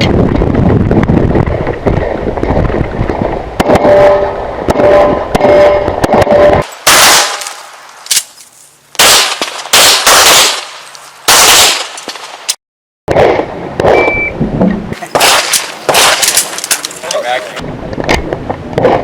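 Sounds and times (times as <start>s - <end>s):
pistol shots with echo: 6.8s - 7.6s, 9.0s - 12.2s, 15.0s - 17.2s.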